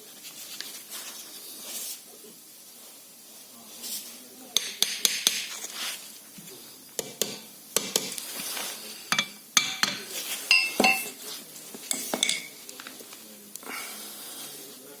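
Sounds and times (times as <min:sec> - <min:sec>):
metal tools clinking: 0:09.2 - 0:11.2, 0:11.8 - 0:12.6.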